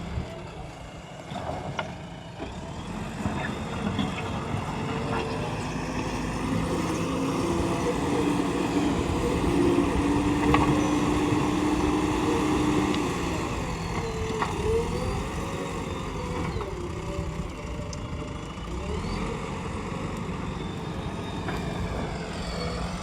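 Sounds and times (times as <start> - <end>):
diesel engine running: 0.0 - 23.0
whining tone: 5.1 - 19.4.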